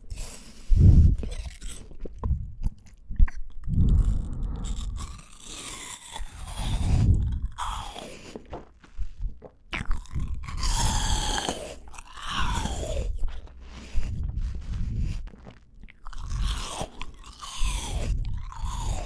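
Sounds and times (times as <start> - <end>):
chewing and crunching fruit: 0.0 - 19.0.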